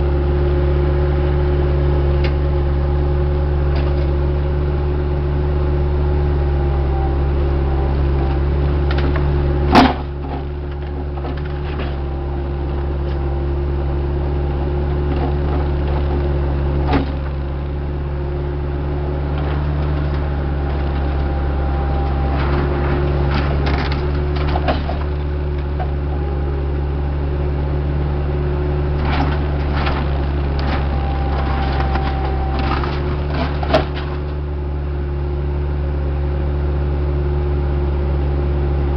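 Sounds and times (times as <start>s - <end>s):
diesel engine running: 0.0s - 38.9s
metallic clanks and knocks: 22.3s - 26.0s, 29.0s - 34.4s.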